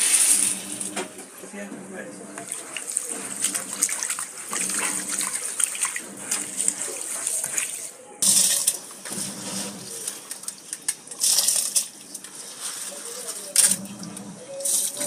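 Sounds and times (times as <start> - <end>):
faint voices: 0.0 - 15.0
tap water running into sink: 2.3 - 12.6.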